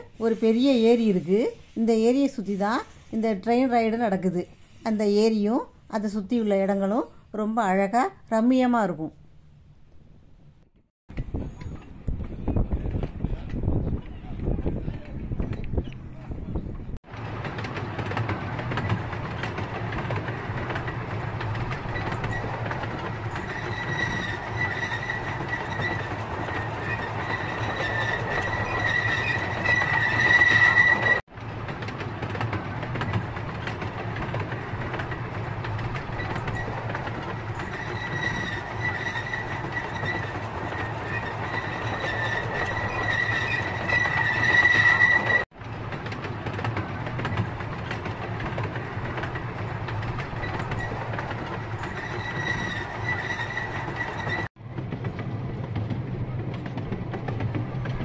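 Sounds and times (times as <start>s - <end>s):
miniature train rumbling on track: 11.2s - 58.0s
high wheel squeal: 21.9s - 31.2s, 36.1s - 45.5s, 50.4s - 54.5s.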